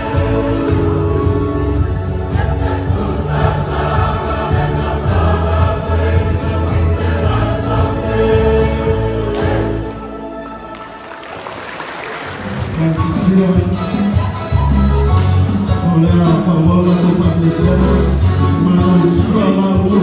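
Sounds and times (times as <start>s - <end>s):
bass accompaniment: 0.0s - 11.0s, 12.4s - 20.0s
choir singing a hymn: 0.0s - 11.4s.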